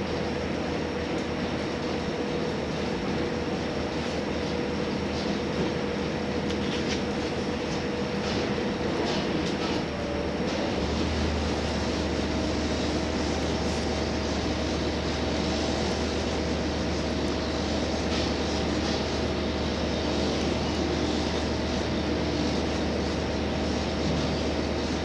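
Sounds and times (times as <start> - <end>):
railcar engine drone: 0.0 - 25.0
rail noise: 5.0 - 25.0.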